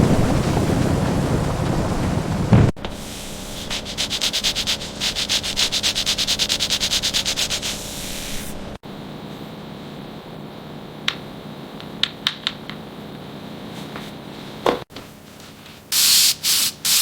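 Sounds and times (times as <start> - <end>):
rapid scrubbing strokes: 0.0 - 8.8.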